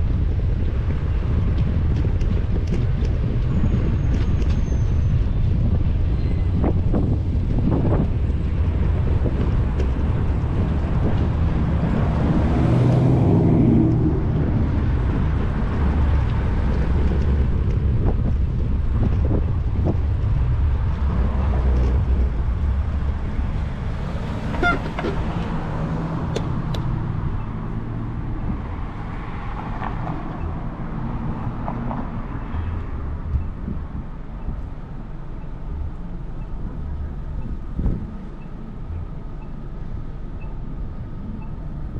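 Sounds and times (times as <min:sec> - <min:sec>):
cars passing by: 0:00.0 - 0:41.9
road noise: 0:00.0 - 0:41.9
wind rumble: 0:00.0 - 0:41.9.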